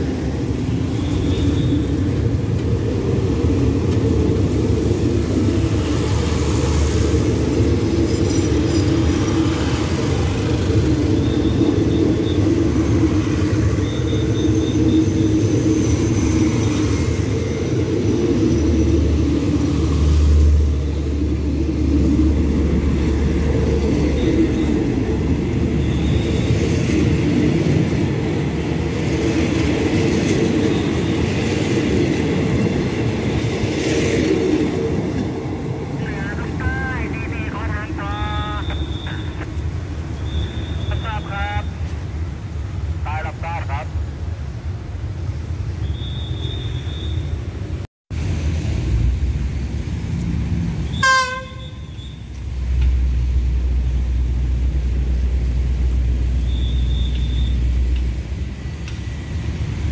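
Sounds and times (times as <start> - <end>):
train wheels rumbling on rails: 0.0 - 36.9.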